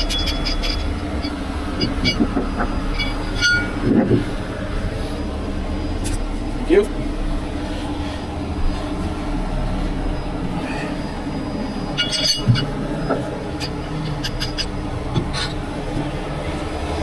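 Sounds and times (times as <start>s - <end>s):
high metallic clinking: 0.0s - 3.9s, 11.9s - 14.7s
truck engine idling: 7.1s - 16.2s.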